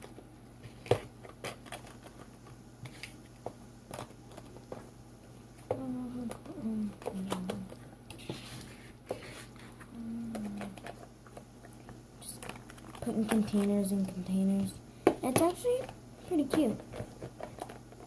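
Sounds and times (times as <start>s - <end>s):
plastic containers clicking and knocking: 15.0s - 17.8s.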